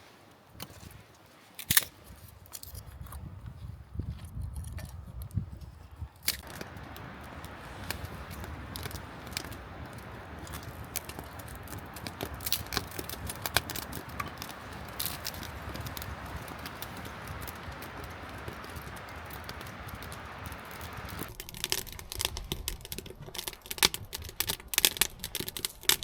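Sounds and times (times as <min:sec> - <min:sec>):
wood fire crackling: 0:06.2 - 0:26.0.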